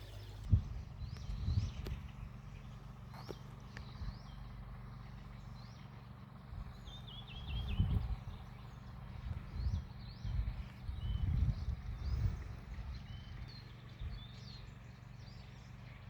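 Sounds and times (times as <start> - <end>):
low rumbles and thumps: 0.0 - 4.4, 6.5 - 14.2
birds chirping: 0.0 - 16.0.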